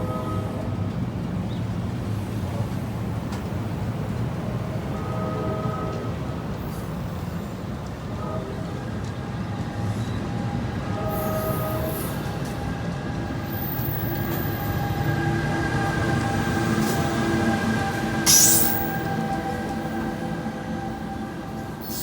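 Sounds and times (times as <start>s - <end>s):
train rumbling on rails: 0.0s - 22.0s
wheel squeal: 18.3s - 19.1s.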